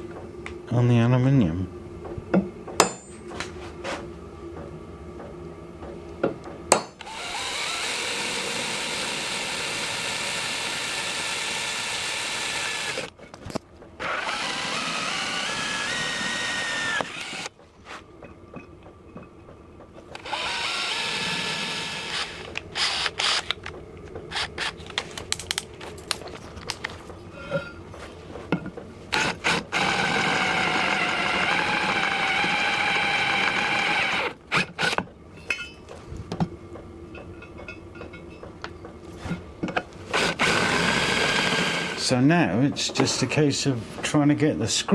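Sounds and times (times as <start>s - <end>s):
power drill drilling into metal: 7.0s - 13.1s, 14.0s - 17.5s, 20.2s - 23.5s, 29.1s - 35.0s, 40.1s - 42.0s.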